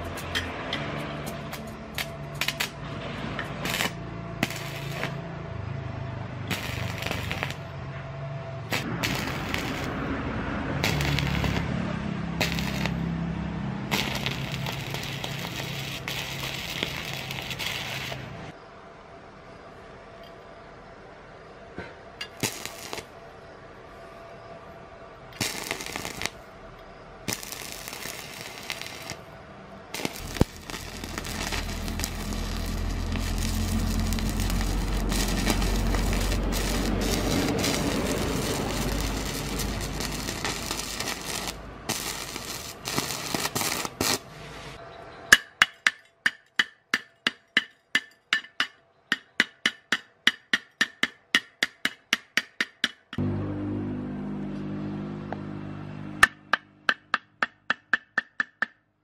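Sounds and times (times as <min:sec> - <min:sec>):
hammer tapping metal: 0:00.0 - 0:01.8, 0:45.3 - 0:53.2, 0:56.2 - 0:58.9
welding arc crackling: 0:00.0 - 0:05.3, 0:06.3 - 0:07.8, 0:08.6 - 0:13.2, 0:13.8 - 0:18.5, 0:22.2 - 0:23.1, 0:25.4 - 0:26.4, 0:27.2 - 0:29.3, 0:29.9 - 0:44.8
low hum: 0:53.2 - 0:56.9.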